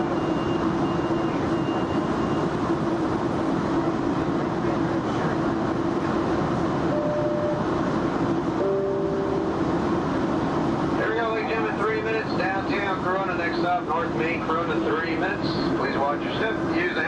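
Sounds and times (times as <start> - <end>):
train ride rumble: 0.0 - 17.0
low hum: 6.7 - 12.5
high whine: 6.8 - 14.5.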